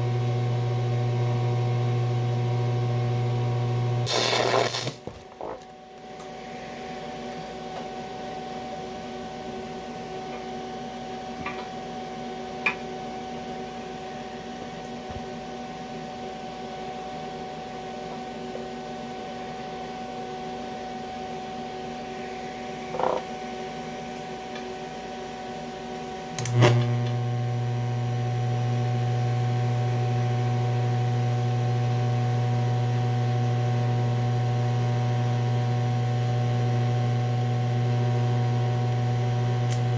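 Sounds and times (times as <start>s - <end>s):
welding machine humming: 0.0s - 7.4s, 21.6s - 24.4s, 26.2s - 39.9s
welding machine click: 4.0s - 6.3s, 26.4s - 27.2s, 39.7s - 39.9s.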